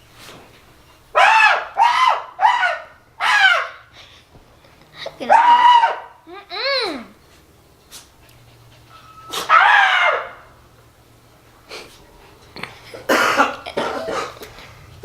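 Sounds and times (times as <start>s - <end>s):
person coughing: 12.9s - 14.5s.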